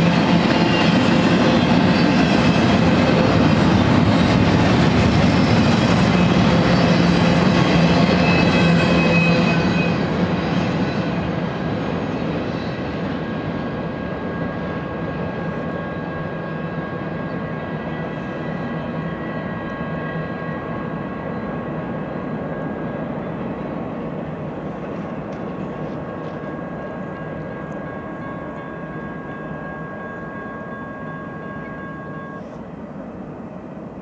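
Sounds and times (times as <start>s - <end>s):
freight train rolling on rails: 0.0s - 34.0s
faint high ringing tones: 13.2s - 34.0s.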